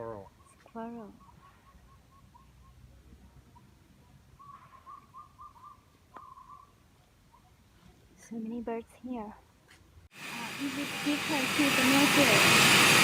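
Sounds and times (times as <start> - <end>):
bird whistling: 4.4 - 6.8.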